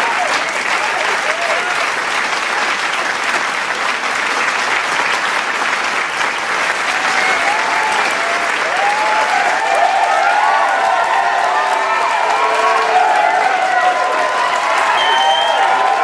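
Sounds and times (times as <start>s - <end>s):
crowd cheering and whooping: 0.0s - 1.9s, 6.7s - 16.0s
crowd clapping: 0.0s - 16.0s.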